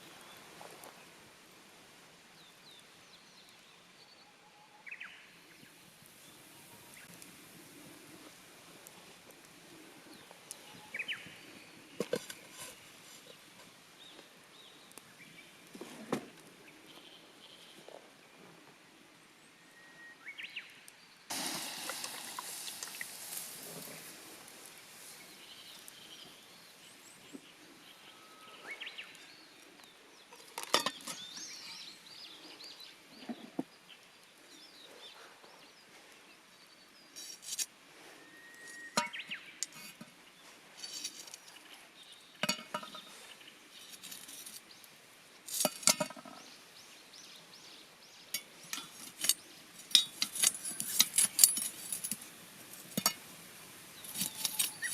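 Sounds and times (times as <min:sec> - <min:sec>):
hiss: 0:21.3 - 0:25.2
metal cookware clinking: 0:42.4 - 0:43.1, 0:48.4 - 0:52.2.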